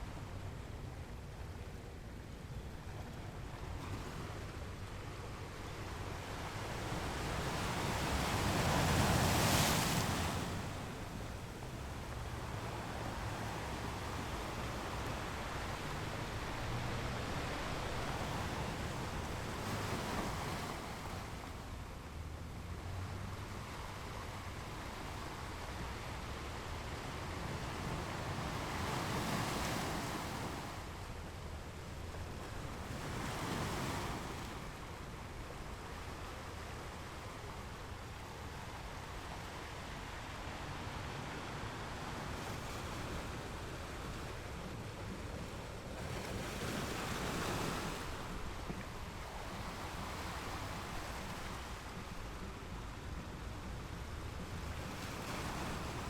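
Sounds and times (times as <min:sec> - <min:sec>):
ocean waves breaking against rocks: 0:40.5 - 0:56.0.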